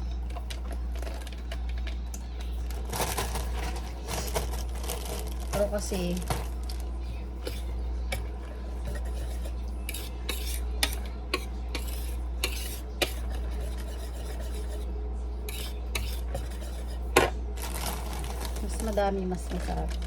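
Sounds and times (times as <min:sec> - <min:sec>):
steady low hum: 0:00.0 - 0:20.0
utensil stirring batter in bowl: 0:05.5 - 0:20.0
utensil clinking against bowl: 0:07.4 - 0:14.9.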